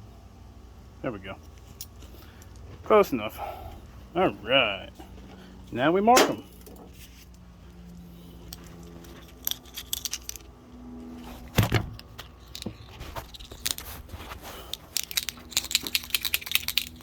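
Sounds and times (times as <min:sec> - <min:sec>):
metallic clicking and rattling: 0:08.5 - 0:10.5, 0:14.7 - 0:17.0.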